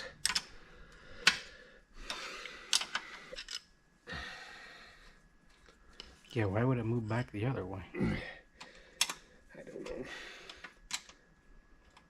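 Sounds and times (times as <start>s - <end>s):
tools and metal parts clicking: 0.0s - 0.5s, 2.7s - 3.7s.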